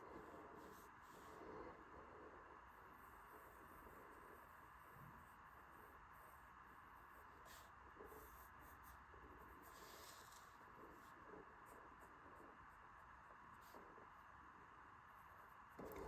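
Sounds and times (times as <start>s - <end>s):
pencil scratching on paper: 2.7s - 14.3s, 15.1s - 16.0s.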